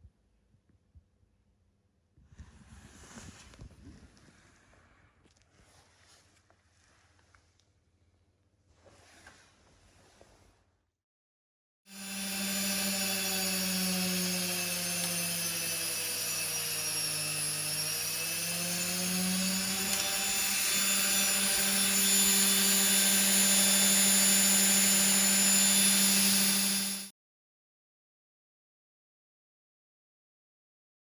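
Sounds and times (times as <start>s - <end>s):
electric motor humming: 11.9s - 27.1s.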